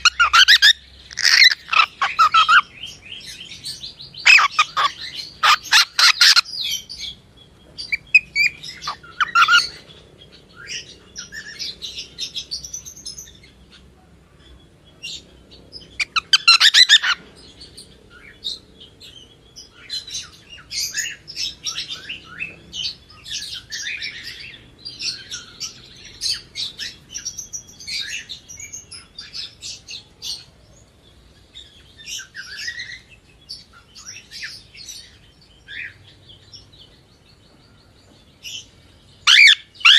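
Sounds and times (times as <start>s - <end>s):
cockatiel chirping and warbling: 0.0s - 2.6s, 4.2s - 6.7s, 7.9s - 9.8s, 16.0s - 17.2s, 39.2s - 39.9s.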